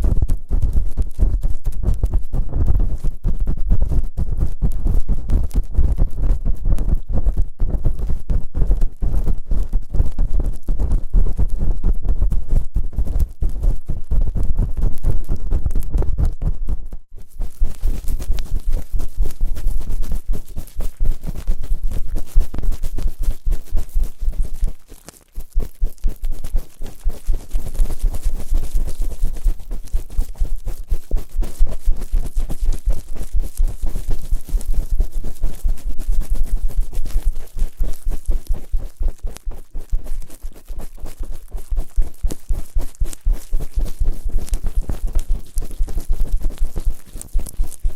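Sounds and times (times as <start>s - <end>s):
scratching and rubbing on microphone: 0.0s - 47.9s.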